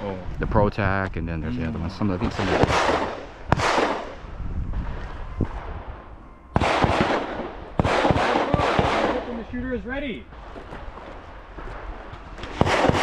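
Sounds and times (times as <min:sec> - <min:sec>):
handgun shots with echo: 0:02.4 - 0:04.2, 0:06.6 - 0:09.4, 0:12.4 - 0:13.0.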